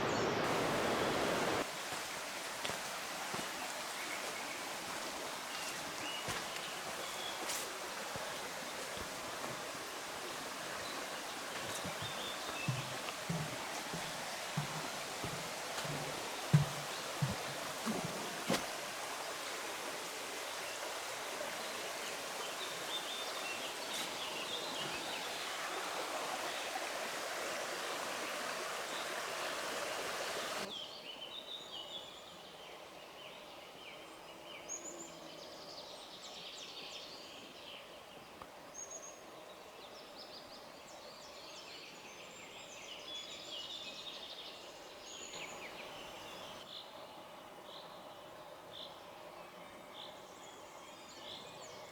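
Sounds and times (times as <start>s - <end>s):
small birds chirping: 0.0s - 18.8s, 19.4s - 51.9s
rushing water: 0.0s - 30.7s.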